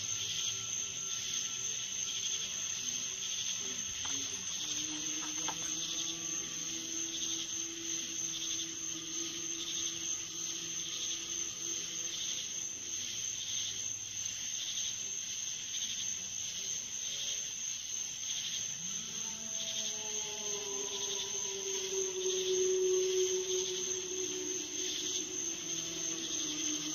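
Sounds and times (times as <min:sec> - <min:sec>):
faint low hum: 0:00.0 - 0:14.4, 0:18.7 - 0:26.9
insects chirping: 0:00.0 - 0:26.9
sustained rising tones: 0:19.8 - 0:26.9.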